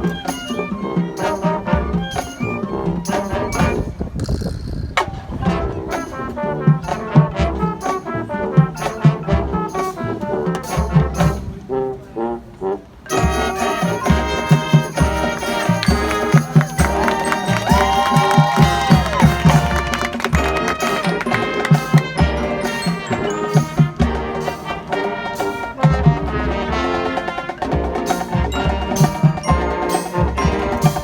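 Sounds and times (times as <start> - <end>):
marching band brass: 0.0 - 4.2, 5.0 - 31.0
steady drum beat: 13.1 - 31.0.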